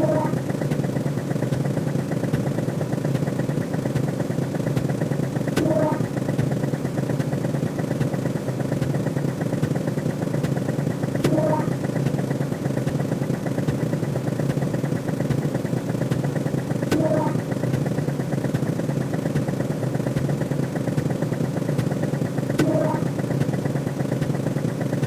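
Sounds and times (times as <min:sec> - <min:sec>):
synthetic drone: 0:00.0 - 0:00.5, 0:05.6 - 0:06.3, 0:11.2 - 0:12.0, 0:16.9 - 0:17.6, 0:22.6 - 0:23.3
fast electronic ticking: 0:05.6 - 0:06.2, 0:11.2 - 0:12.0, 0:16.9 - 0:17.7, 0:22.6 - 0:23.2.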